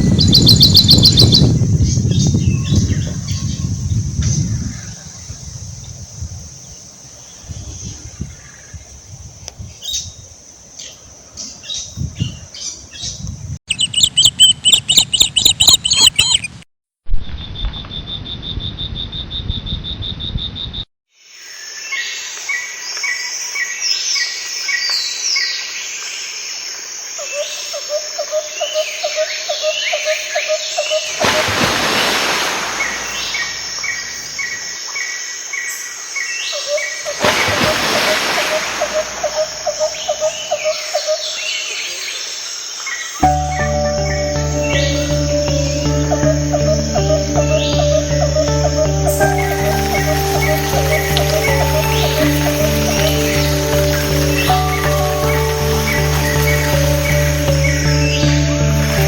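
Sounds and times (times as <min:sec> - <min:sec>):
birds singing and calling: 0:00.0 - 0:05.9, 0:10.8 - 0:16.6, 0:27.3 - 0:59.0
quickly repeated bird calls: 0:36.5 - 0:42.0.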